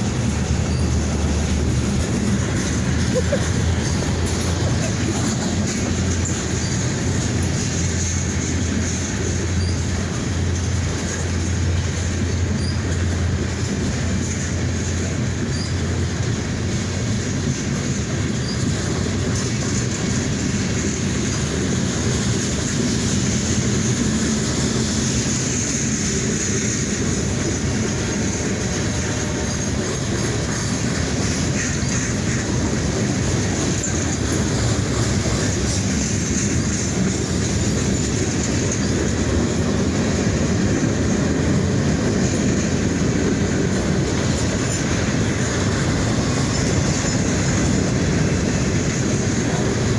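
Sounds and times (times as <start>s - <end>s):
high continuous squeal: 0.0s - 21.0s
train wheels rumbling on rails: 0.0s - 49.9s.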